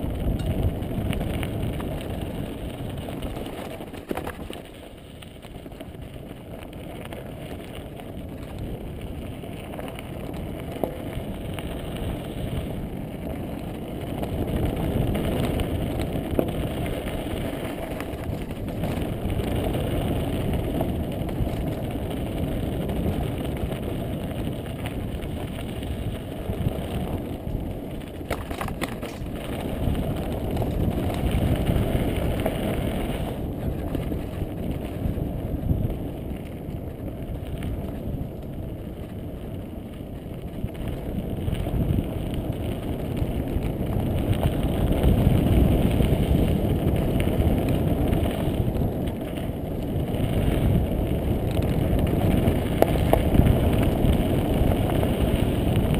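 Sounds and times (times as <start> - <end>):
bike tyres rumbling on dirt: 0.0 - 55.9
wind buffeting microphone: 0.0 - 55.9
bike rattle: 0.2 - 6.3, 25.4 - 35.3.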